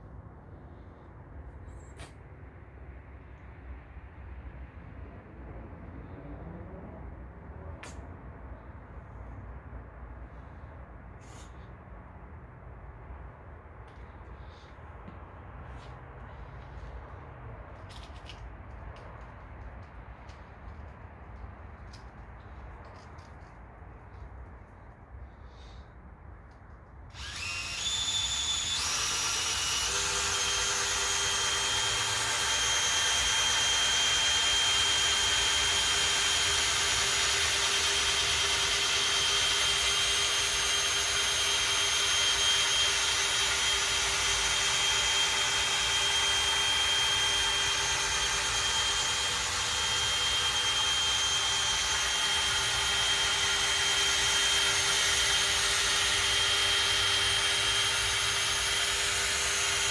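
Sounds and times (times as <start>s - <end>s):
electric polisher whining: 27.1s - 59.9s.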